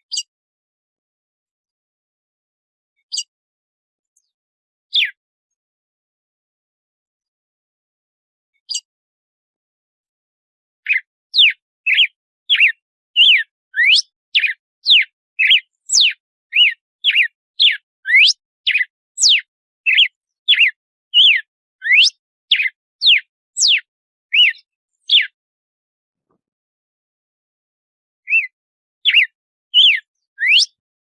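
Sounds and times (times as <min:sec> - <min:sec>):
bird singing whistled notes: 0:00.1 - 0:00.3, 0:03.0 - 0:03.3, 0:04.9 - 0:05.2, 0:08.6 - 0:08.9, 0:10.9 - 0:25.4, 0:28.2 - 0:30.8.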